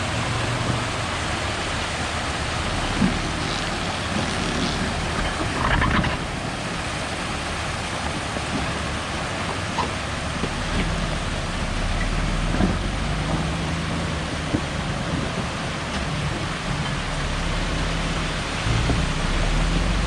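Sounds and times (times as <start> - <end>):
vehicle engine running: 17.0 - 20.0.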